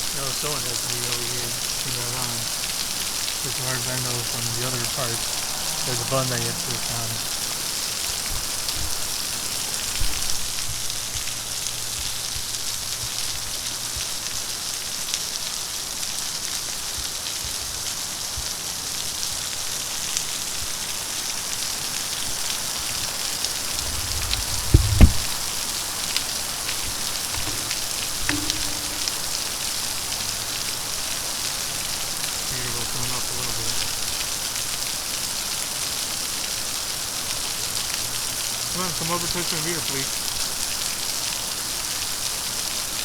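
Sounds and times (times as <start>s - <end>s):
water splashing in a fountain: 0.0s - 43.0s
brief low thump: 23.8s - 25.4s, 27.4s - 29.2s.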